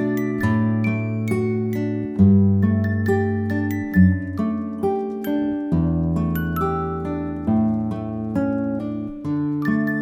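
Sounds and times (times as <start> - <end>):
plucked acoustic guitar: 0.0 - 10.0.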